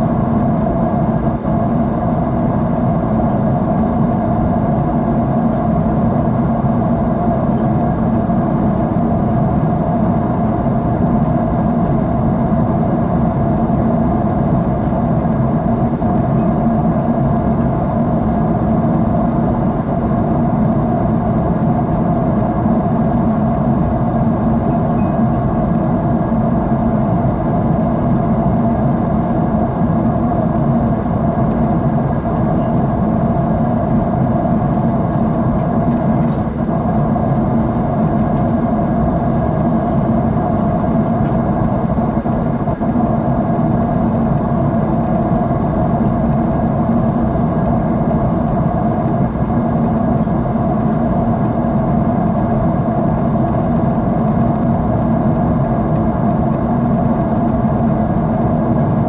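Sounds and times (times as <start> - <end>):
jet engine drone in cabin: 0.0 - 59.0.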